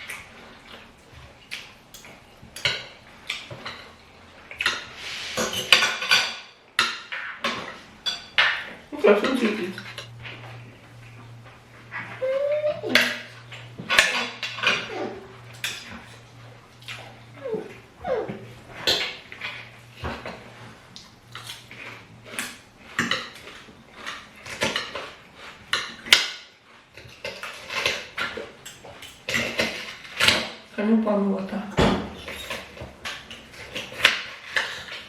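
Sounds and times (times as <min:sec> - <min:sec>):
cutlery clinking on plates: 0:04.6 - 0:10.2, 0:18.8 - 0:20.4, 0:31.8 - 0:35.0.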